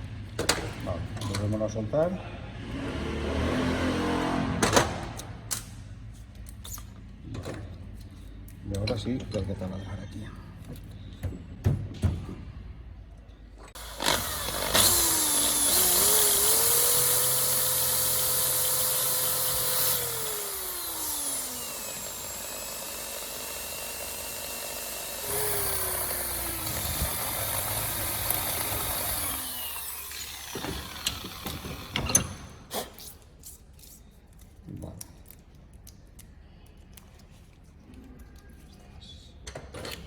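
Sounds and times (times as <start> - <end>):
electric drill boring: 13.8 - 32.6.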